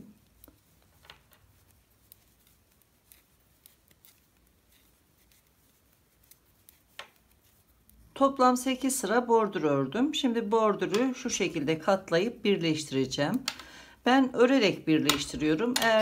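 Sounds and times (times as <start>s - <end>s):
knitting needles clicking: 0.0s - 8.0s, 10.7s - 11.8s, 13.0s - 13.8s, 14.9s - 16.0s.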